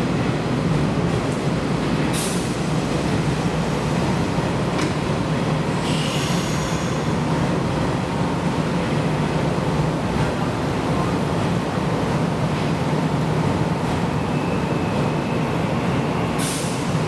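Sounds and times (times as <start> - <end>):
train doors opening with air hiss: 2.0 - 7.2, 13.9 - 17.0.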